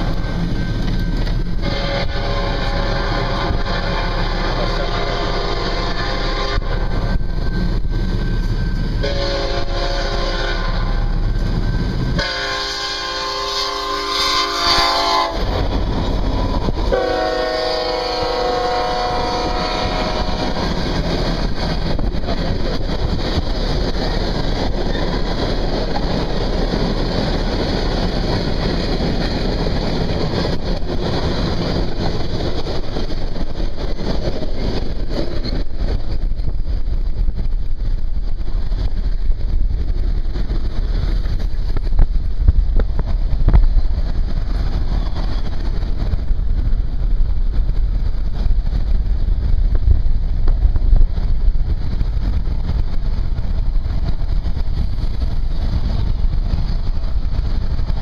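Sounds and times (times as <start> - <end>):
train rumbling past on rails: 0.0 - 58.0
locomotive air horn blasts: 1.6 - 7.0, 9.0 - 11.1, 12.2 - 15.6, 16.9 - 20.5.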